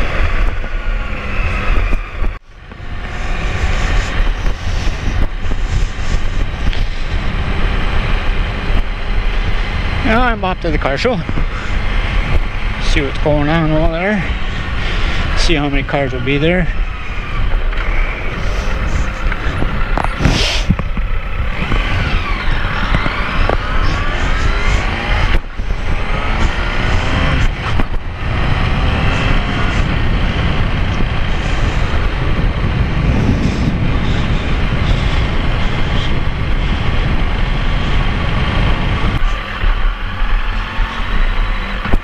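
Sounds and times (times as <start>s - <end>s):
motorcycle engine accelerating: 0.0s - 42.0s
wind rushing over microphone: 0.0s - 42.0s.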